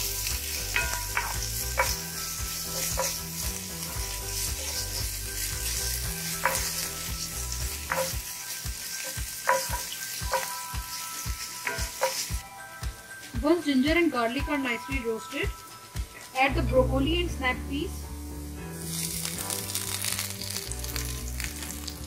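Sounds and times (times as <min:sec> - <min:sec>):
garlic sizzling in oil: 0:00.0 - 0:17.1, 0:17.8 - 0:22.0
spatula clicking against pan: 0:00.8 - 0:02.1, 0:09.0 - 0:10.5.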